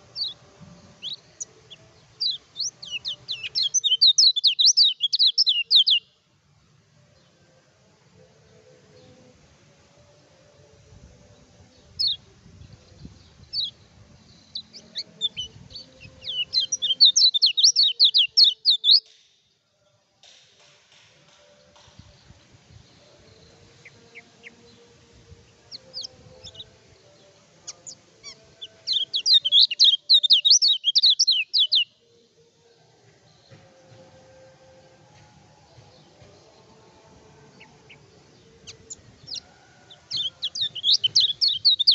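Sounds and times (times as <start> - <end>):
bird singing rapid notes: 1.0 - 6.0, 14.4 - 19.1, 27.7 - 31.9, 40.1 - 41.9.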